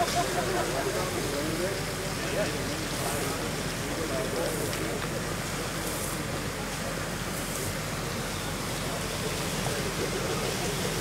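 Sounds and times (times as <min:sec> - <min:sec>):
noisy hiss: 0:00.0 - 0:11.0.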